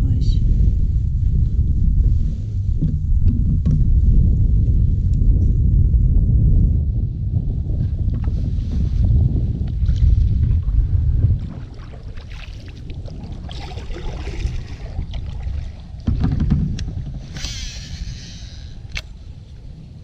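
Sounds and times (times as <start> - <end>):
low rumble: 0.0 - 20.0
wind gusting on microphone: 0.0 - 20.0
short hiss: 17.4 - 18.6
sharp click: 18.9 - 19.1.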